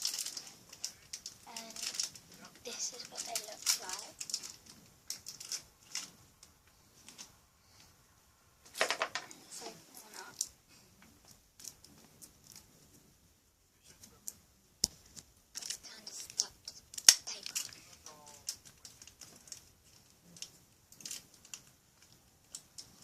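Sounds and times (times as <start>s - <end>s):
wrapper crinkling and tearing: 0.0s - 6.1s, 15.5s - 23.0s.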